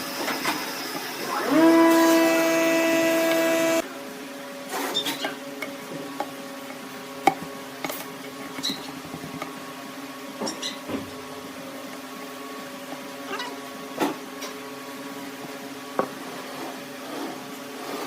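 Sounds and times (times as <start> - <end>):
wood lathe humming: 1.1 - 3.8.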